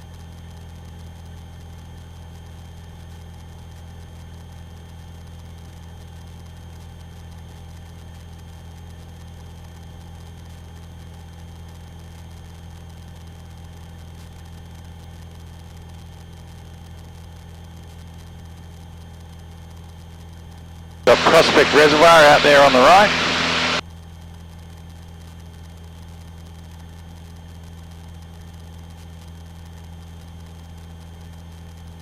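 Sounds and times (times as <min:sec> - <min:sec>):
muffled aircraft engine droning: 0:21.1 - 0:23.8.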